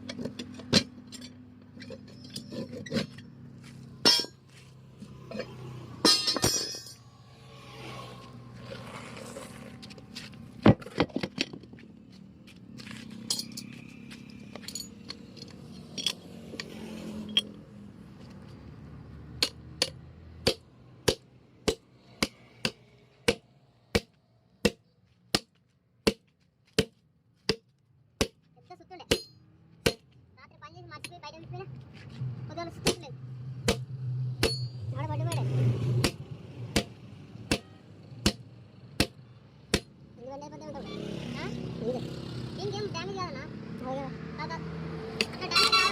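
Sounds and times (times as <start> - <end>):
metal tools clinking and scraping: 0.0 - 3.4, 4.0 - 4.5, 5.3 - 7.1, 12.8 - 17.6, 34.5 - 35.7
hammer striking: 4.0 - 4.4, 19.4 - 28.4, 29.1 - 30.1, 33.6 - 34.8, 36.0 - 39.9.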